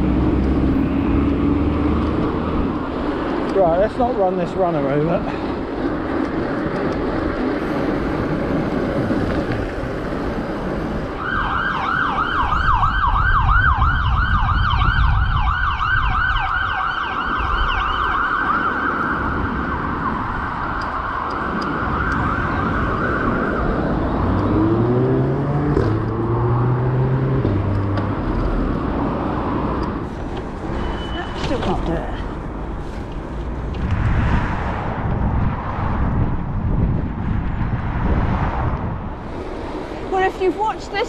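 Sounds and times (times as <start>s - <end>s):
road noise: 0.0s - 41.0s
wind: 0.0s - 41.0s
siren in fast yelp: 11.2s - 19.0s.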